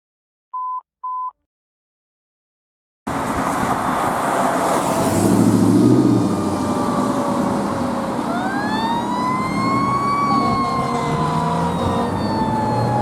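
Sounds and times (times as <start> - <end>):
street traffic noise: 3.1 - 13.0
vehicle engine rumble: 3.1 - 13.0
faint siren wailing: 4.7 - 13.0.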